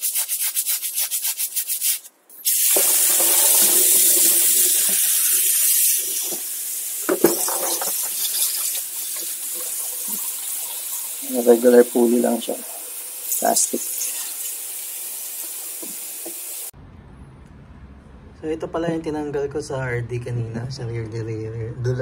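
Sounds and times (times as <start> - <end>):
fast scrubbing: 0.0 - 2.1
water running from a tap: 2.4 - 16.7.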